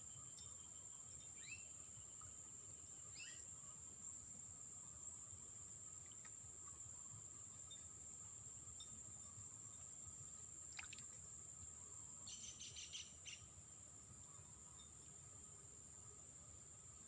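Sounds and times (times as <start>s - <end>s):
bird chirps: 3.1s - 3.4s, 12.3s - 13.5s.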